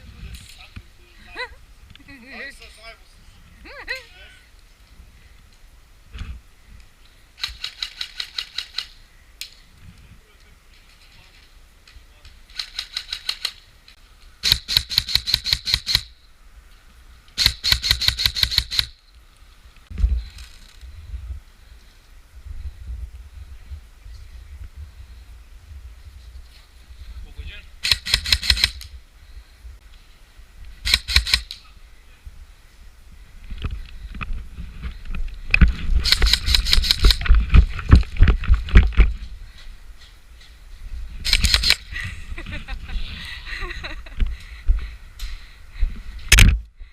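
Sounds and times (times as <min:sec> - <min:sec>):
airsoft rifle bursts: 0:14.4 - 0:16.1, 0:17.4 - 0:19.0, 0:27.8 - 0:28.9, 0:30.8 - 0:31.6, 0:36.0 - 0:37.3, 0:41.2 - 0:41.9.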